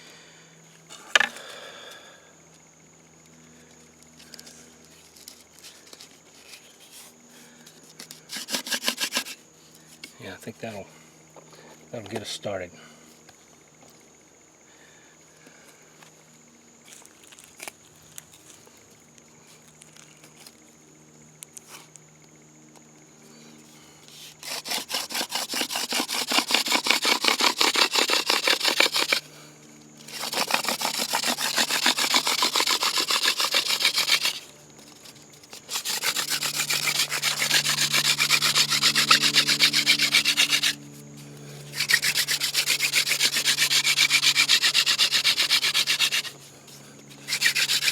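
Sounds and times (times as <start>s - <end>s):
wood-on-wood rubbing: 8.3s - 9.4s, 24.4s - 29.2s, 30.1s - 40.8s, 41.7s - 46.4s, 47.2s - 47.9s.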